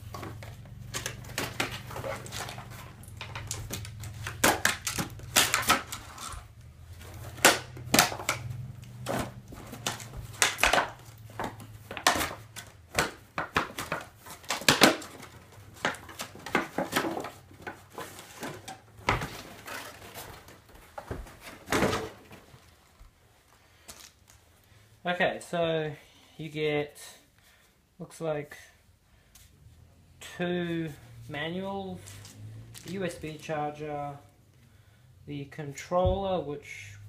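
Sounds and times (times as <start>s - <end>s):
packaging crackling and rustling: 0.0s - 23.0s.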